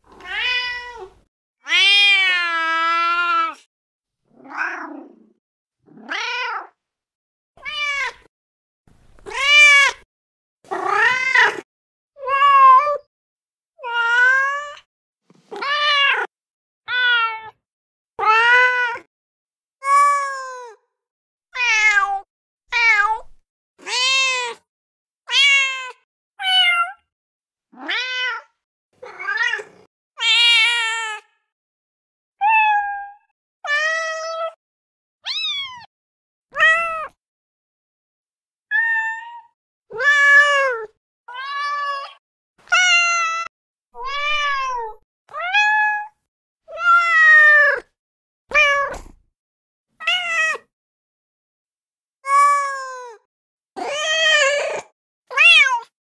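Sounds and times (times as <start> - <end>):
cat meows: 0.1 - 3.7, 5.9 - 6.8, 7.6 - 8.3, 9.2 - 10.0, 10.7 - 11.6, 12.2 - 13.1, 15.5 - 16.3, 16.9 - 17.6, 18.2 - 19.1, 21.6 - 24.7, 25.3 - 27.1, 27.7 - 31.4, 32.4 - 34.6, 35.2 - 35.9, 36.5 - 37.2, 38.7 - 47.9, 48.5 - 49.2, 50.0 - 50.7, 52.2 - 55.9.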